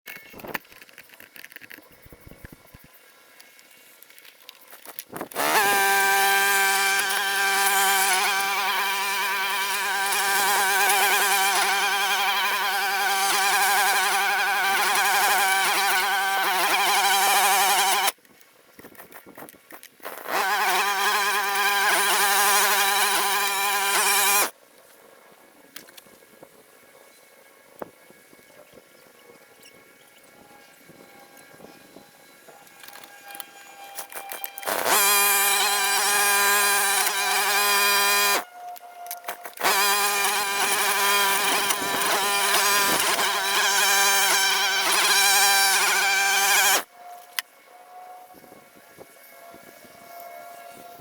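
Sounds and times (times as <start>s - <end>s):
grass cutter motor running: 5.3s - 18.2s, 20.0s - 24.5s, 32.7s - 38.4s, 39.4s - 46.9s.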